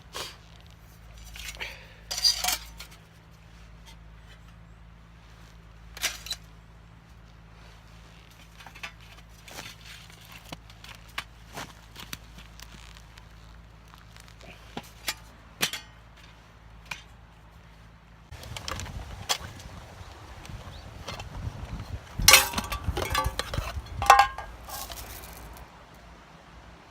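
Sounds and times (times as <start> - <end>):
metal cookware clinking: 22.2 - 25.0.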